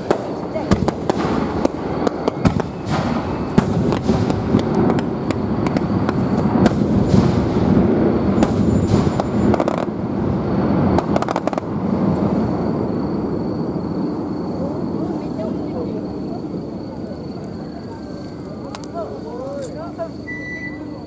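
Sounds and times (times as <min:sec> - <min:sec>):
steady rumble: 0:00.0 - 0:16.8
fireworks bangs and crackles: 0:00.0 - 0:19.0.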